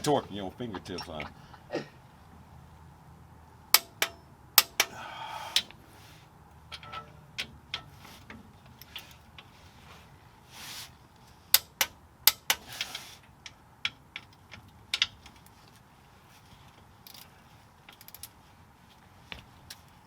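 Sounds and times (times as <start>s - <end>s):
ratchet wrench clicking: 3.8s - 5.0s, 11.5s - 13.1s, 17.9s - 18.3s
scraping rustles: 7.9s - 11.5s.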